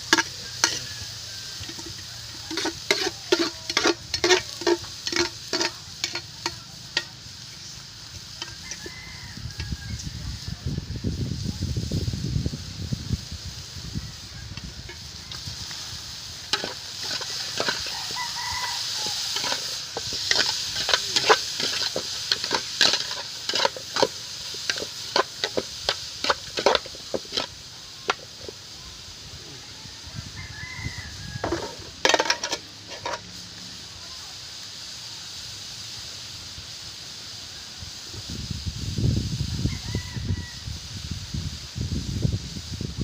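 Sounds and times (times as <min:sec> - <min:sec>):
food sizzling: 0:00.0 - 0:43.0.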